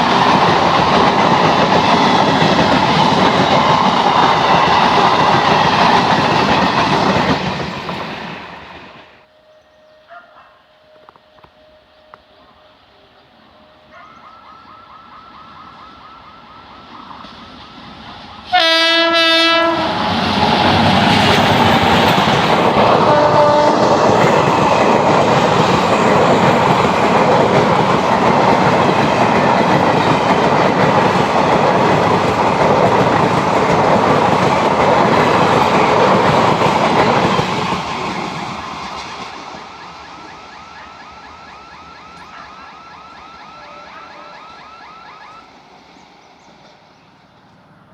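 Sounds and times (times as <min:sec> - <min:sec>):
train wheels rushing on rails: 0:00.0 - 0:09.3, 0:14.4 - 0:47.9
train horn: 0:09.3 - 0:17.0, 0:18.4 - 0:20.6, 0:23.0 - 0:24.3, 0:39.6 - 0:45.4.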